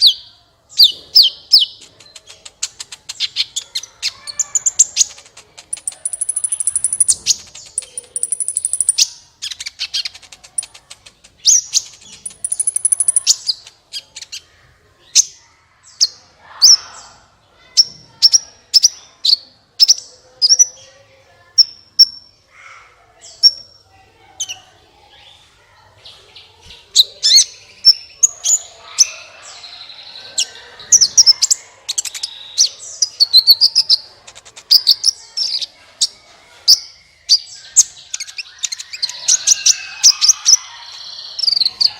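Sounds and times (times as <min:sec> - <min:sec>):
sunbird singing chirps and trills: 0:00.0 - 0:23.8, 0:36.7 - 0:41.9.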